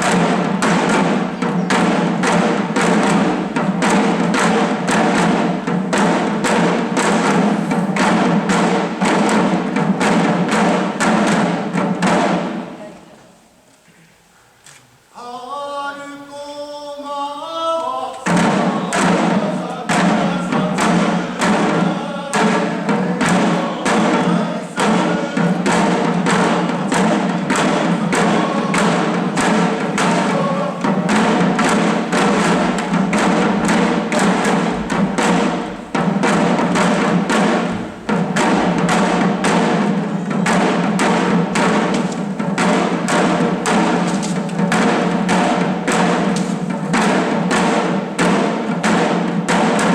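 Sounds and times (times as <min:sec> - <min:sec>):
drums beating in driving rhythm: 0:00.0 - 0:12.9, 0:18.2 - 0:49.9
people chanting: 0:15.2 - 0:44.1.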